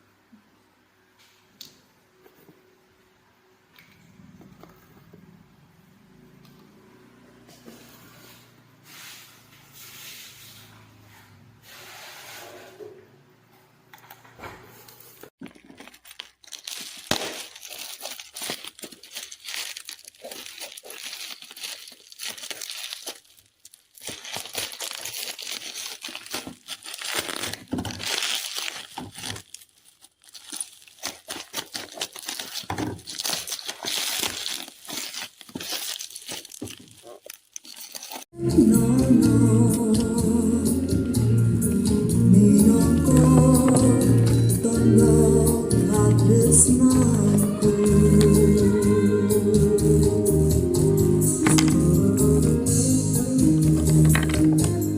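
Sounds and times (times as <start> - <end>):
packaging crinkling and tearing: 15.3 - 38.4, 42.6 - 45.1, 46.0 - 48.8, 51.3 - 51.9, 53.6 - 54.9.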